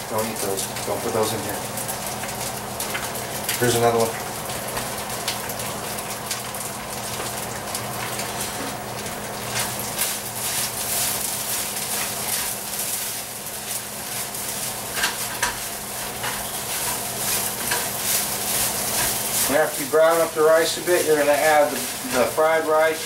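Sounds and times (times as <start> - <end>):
rice sizzling in a pan: 0.0 - 23.0
utensil scraping a pan: 9.5 - 22.4.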